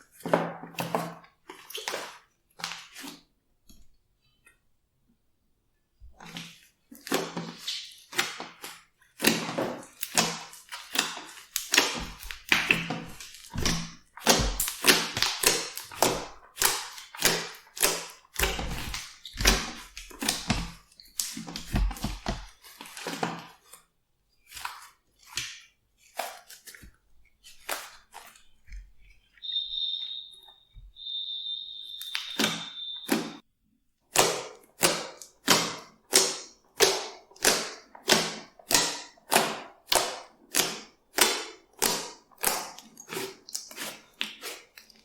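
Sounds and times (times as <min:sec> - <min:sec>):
slime squishing by hand: 0:06.2 - 0:23.7.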